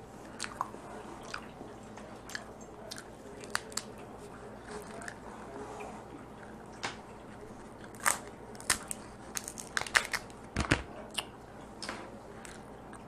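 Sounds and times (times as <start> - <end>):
crab shell cracking: 3.0 - 4.0, 7.9 - 11.3.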